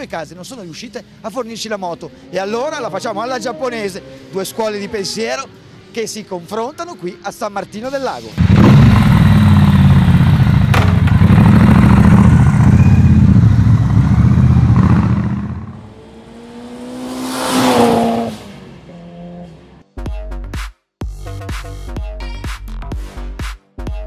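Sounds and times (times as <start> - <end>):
motorcycle engine revving: 8.4 - 19.8.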